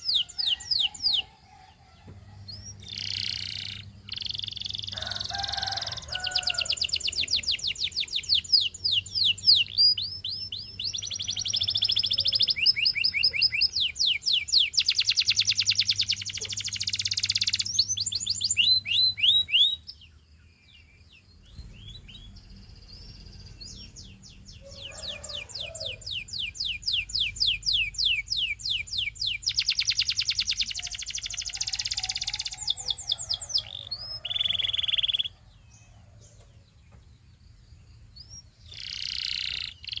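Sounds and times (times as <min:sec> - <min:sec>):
canary singing trills: 0:00.0 - 0:40.0.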